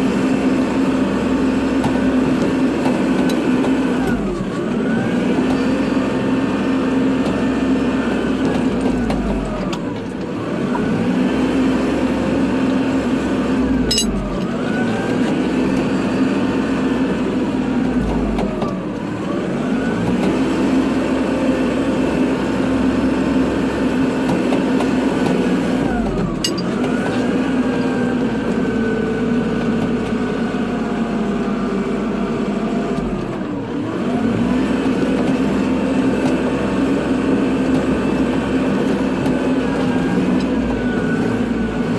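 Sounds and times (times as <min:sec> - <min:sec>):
tractor diesel engine running: 0:00.0 - 0:41.9
drive whine: 0:12.7 - 0:19.1.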